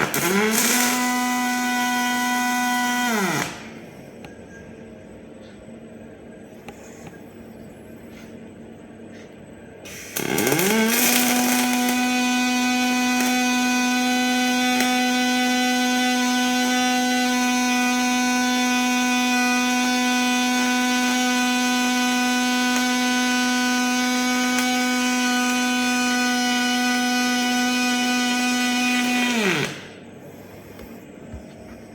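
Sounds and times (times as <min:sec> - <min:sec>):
low background hum: 0:00.0 - 0:15.3, 0:24.8 - 0:31.9
electric motor whine: 0:10.1 - 0:30.0.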